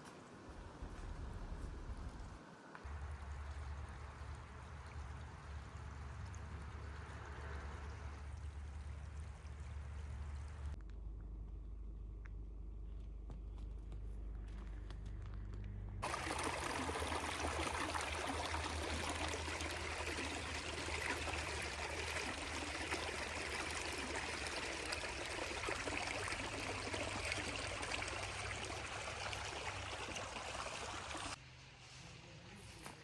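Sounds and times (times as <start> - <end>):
running water rushing: 16.0 - 31.4.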